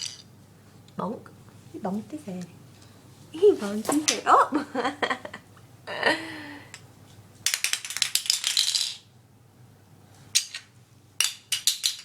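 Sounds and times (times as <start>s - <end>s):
plastic toy pieces rattling: 7.4s - 9.0s.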